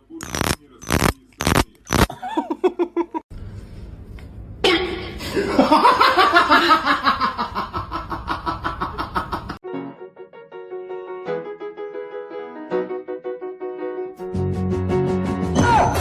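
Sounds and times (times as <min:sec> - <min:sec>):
person laughing hard: 0:02.1 - 0:03.2.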